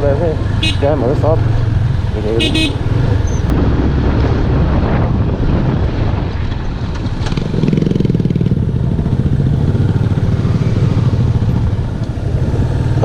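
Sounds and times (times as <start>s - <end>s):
motorcycle engine running: 0.0s - 3.5s, 7.0s - 13.0s
wind rush on microphone: 1.3s - 13.0s.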